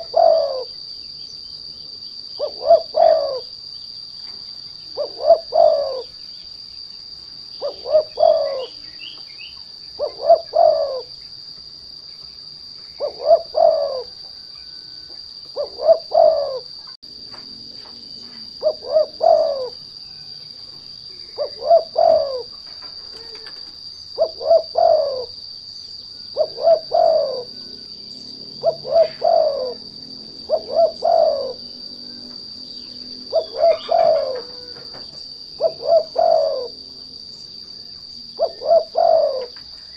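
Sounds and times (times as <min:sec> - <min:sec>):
dove cooing: 0:00.0 - 0:00.9, 0:02.3 - 0:03.6, 0:04.9 - 0:06.2, 0:07.6 - 0:09.2, 0:09.9 - 0:11.2, 0:12.9 - 0:17.0, 0:18.2 - 0:25.5, 0:26.2 - 0:39.9.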